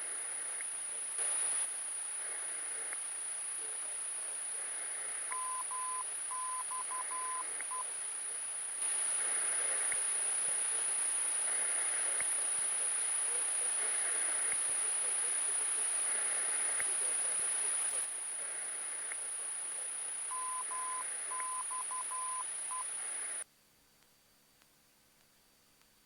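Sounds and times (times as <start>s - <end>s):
radio receiver hiss: 0.0s - 23.5s
morse code beeps: 5.3s - 7.9s, 20.3s - 23.4s.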